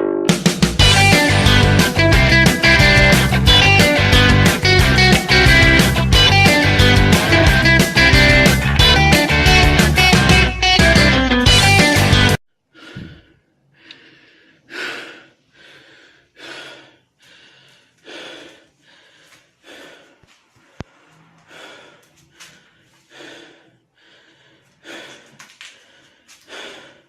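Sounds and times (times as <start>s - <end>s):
wheezy breathing: 12.7s - 27.0s.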